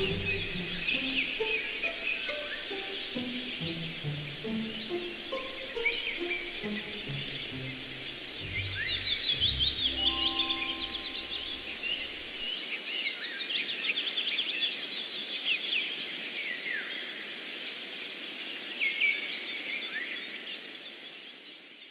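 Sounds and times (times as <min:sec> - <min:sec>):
small birds chirping: 0:00.0 - 0:16.9
steady background hiss: 0:00.0 - 0:21.9
held low tones: 0:03.2 - 0:12.5.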